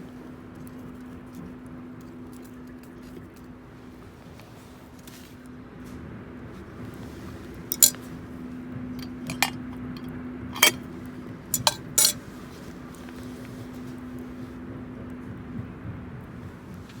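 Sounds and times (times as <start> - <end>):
metal cookware clinking: 7.7 - 8.0, 9.0 - 10.8, 11.6 - 12.2.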